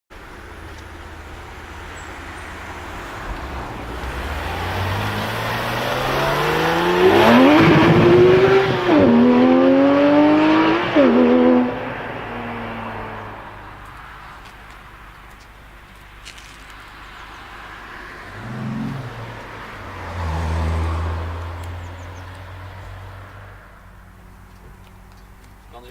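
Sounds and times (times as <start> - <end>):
sports car accelerating past: 1.9 - 13.8, 17.2 - 23.8.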